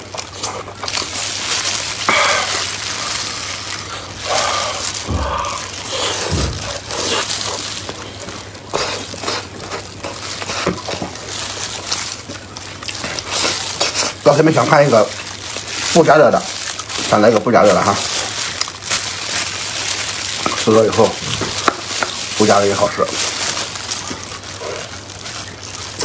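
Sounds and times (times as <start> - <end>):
chewing and mouth sounds: 0.0 - 26.0
low thumps: 5.0 - 7.0.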